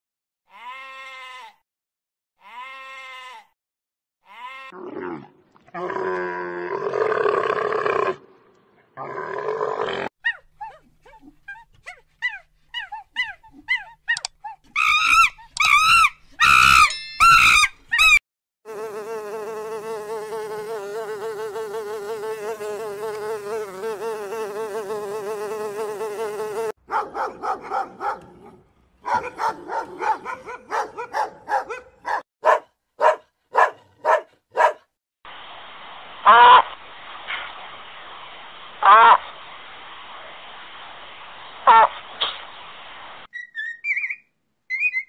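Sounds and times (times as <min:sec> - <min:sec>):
bees buzzing: 0:18.7 - 0:26.8
monkey chirping calls: 0:43.3 - 0:45.0.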